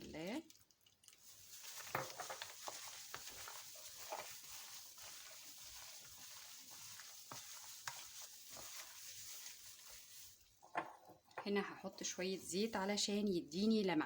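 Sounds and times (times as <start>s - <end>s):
hands squelching meat in marinade: 0.2s - 10.6s.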